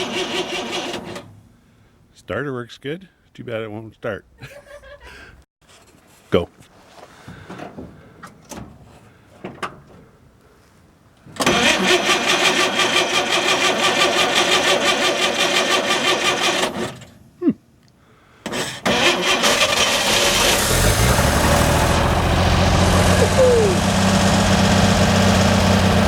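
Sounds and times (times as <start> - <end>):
starter cranking engine: 0.0 - 1.3, 11.4 - 17.0, 18.5 - 26.0.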